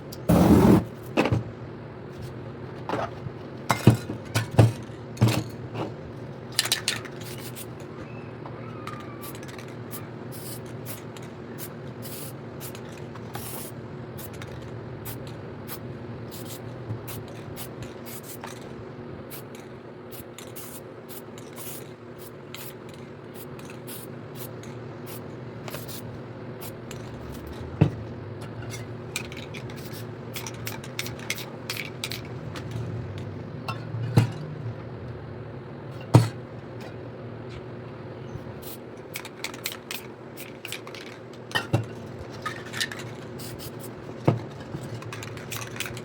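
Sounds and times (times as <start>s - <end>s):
spray paint can hissing: 0.3s - 0.8s, 9.2s - 11.0s, 11.6s - 12.8s, 13.4s - 18.6s, 20.1s - 22.8s, 23.4s - 26.0s, 43.4s - 43.9s
steady low hum: 9.9s - 46.0s.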